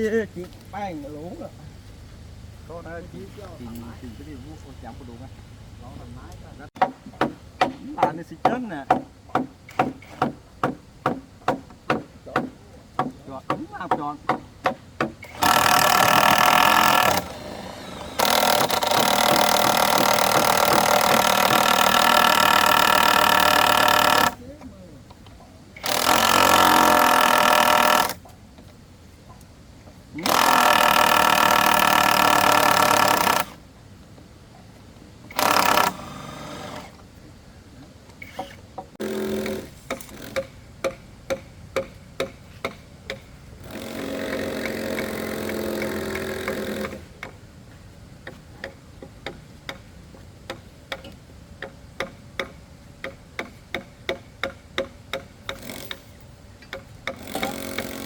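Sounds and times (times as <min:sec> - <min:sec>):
power tool working wood: 0:15.2 - 0:24.4, 0:25.8 - 0:28.2, 0:35.3 - 0:37.0.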